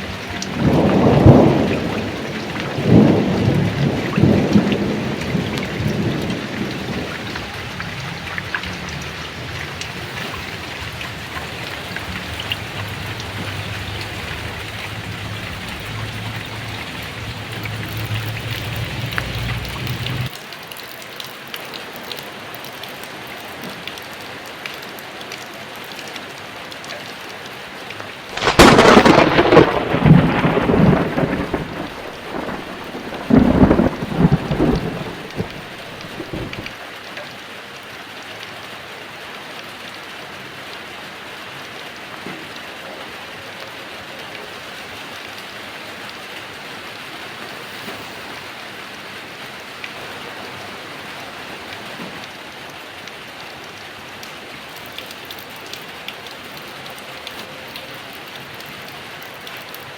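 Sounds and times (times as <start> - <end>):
thunder rumbling: 0.0 - 20.3, 28.3 - 36.7
heavy rain: 0.0 - 59.9
sharp thunderclap: 0.5 - 8.0, 11.7 - 20.3, 28.4 - 36.7.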